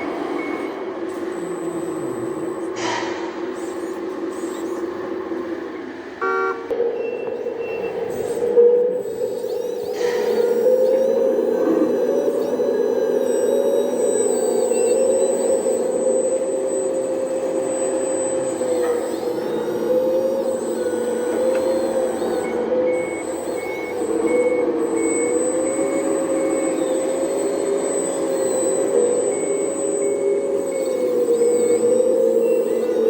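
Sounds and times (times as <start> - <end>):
reversing beeper: 0.0 - 3.2, 6.2 - 33.0.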